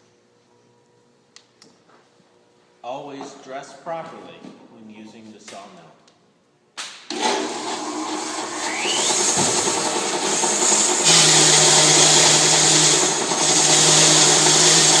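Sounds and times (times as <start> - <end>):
bandsaw mill running: 7.1 - 15.0.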